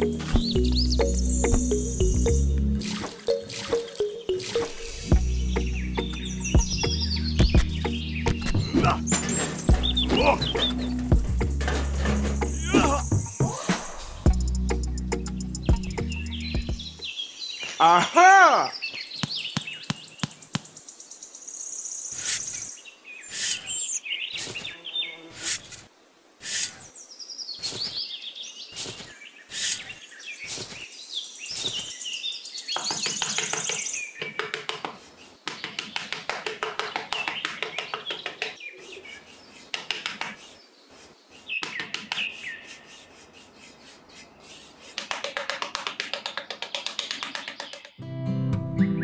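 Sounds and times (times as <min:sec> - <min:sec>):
birds chirping: 0:00.0 - 0:25.8, 0:26.4 - 0:48.0
trowel scraping sand: 0:09.0 - 0:13.0, 0:23.3 - 0:24.7, 0:25.3 - 0:26.9, 0:28.7 - 0:30.8, 0:42.2 - 0:45.3.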